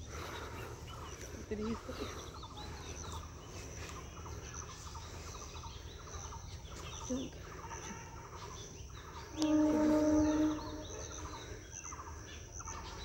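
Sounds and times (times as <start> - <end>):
birds chattering: 0.0 - 13.0
high-pitched hum: 9.0 - 11.6.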